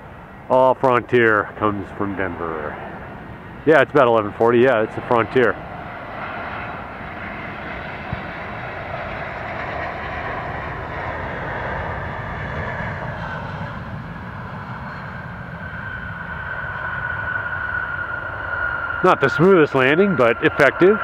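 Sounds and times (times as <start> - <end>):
jet engines whining: 0.0 - 21.0.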